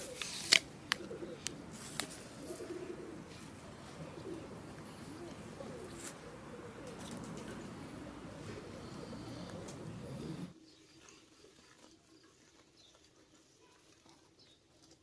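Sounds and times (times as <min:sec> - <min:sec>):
pigeons cooing: 0:00.0 - 0:11.9.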